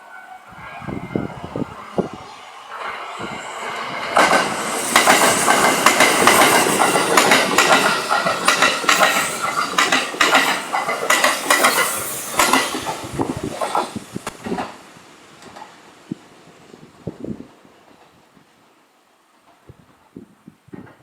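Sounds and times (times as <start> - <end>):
train wheels clattering over rail joints: 3.6 - 14.8.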